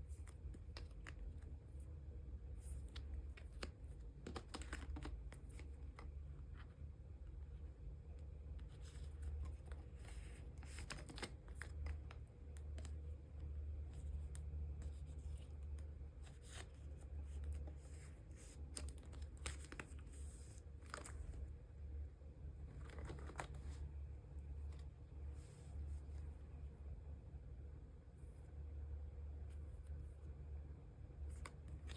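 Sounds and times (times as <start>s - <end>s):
steady low hum: 0.0s - 31.9s
plastic sleeves crinkling: 2.7s - 6.1s, 8.8s - 13.0s, 13.8s - 21.5s, 22.7s - 23.9s.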